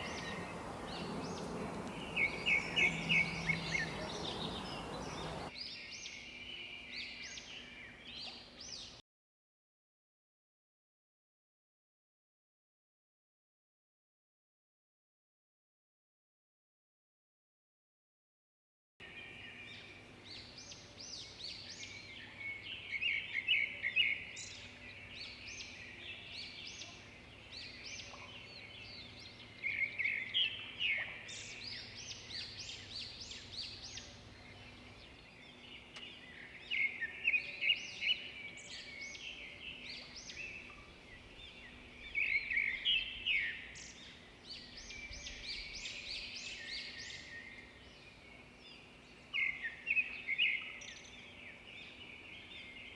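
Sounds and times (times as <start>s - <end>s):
background hiss: 0.0s - 5.5s
songbirds chirping: 0.0s - 9.0s, 19.0s - 52.9s.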